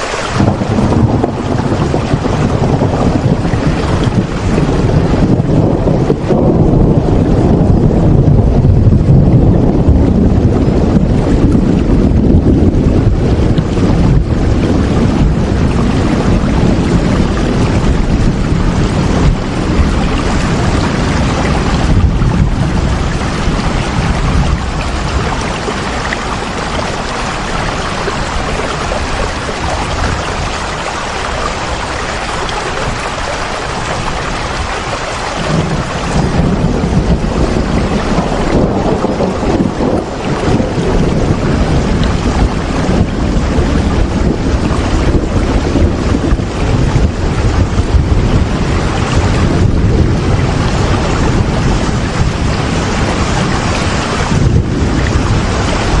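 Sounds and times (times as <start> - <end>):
deep rumble: 0.0 - 56.0
heavy rain falling: 0.0 - 56.0.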